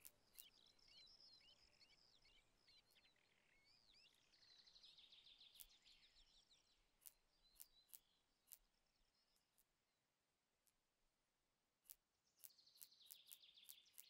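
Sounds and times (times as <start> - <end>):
rapid bird trill: 0.0 - 1.8, 11.9 - 14.0
small birds chirping: 0.0 - 10.0, 11.8 - 14.0.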